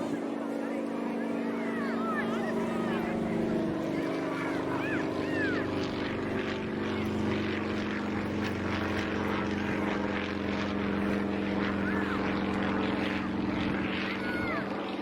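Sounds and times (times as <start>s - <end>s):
rising and falling call: 0.0s - 7.2s
steady engine drone: 0.0s - 15.0s.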